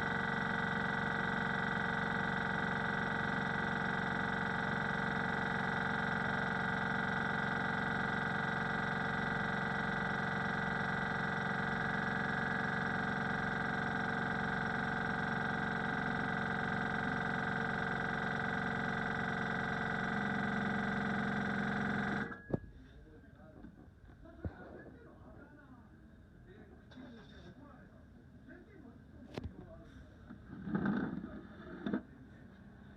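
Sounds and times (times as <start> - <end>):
air compressor running: 0.0 - 22.4.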